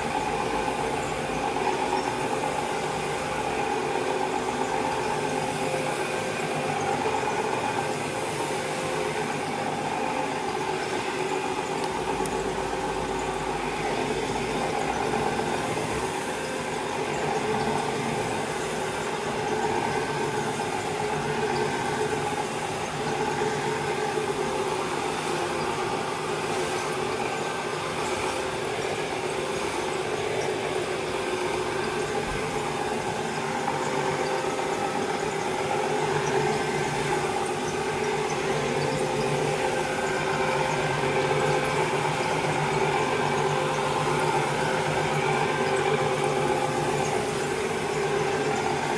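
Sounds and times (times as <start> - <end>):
carpet cleaning machine running: 0.0 - 48.9.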